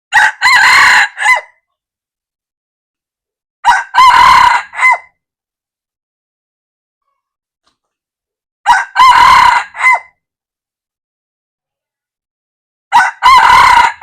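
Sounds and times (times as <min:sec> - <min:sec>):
rooster crowing: 0:00.1 - 0:01.6, 0:03.6 - 0:05.1, 0:08.7 - 0:10.2, 0:12.9 - 0:14.0.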